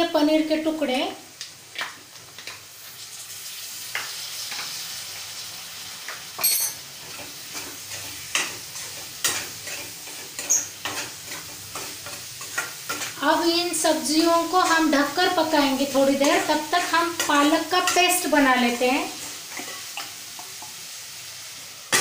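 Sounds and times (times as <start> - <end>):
food sizzling in hot oil: 0.0 - 22.0
metallic ring: 6.4 - 6.8
spatula scraping a pan: 7.0 - 13.2, 19.1 - 20.2.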